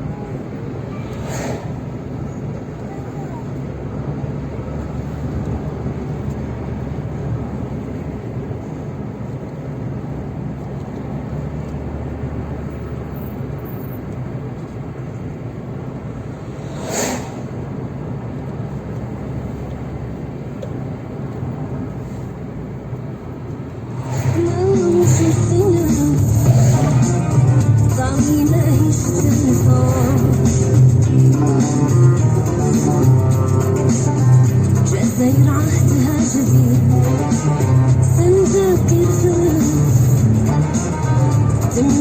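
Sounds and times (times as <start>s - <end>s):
car engine and road noise: 0.0s - 42.0s
music: 24.0s - 42.0s.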